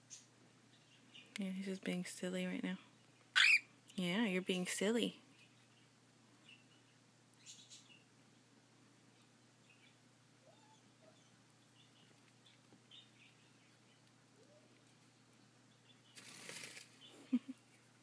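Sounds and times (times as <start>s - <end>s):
faint soft bird chirps: 5.3s - 8.1s
bird flapping wings: 16.2s - 17.1s.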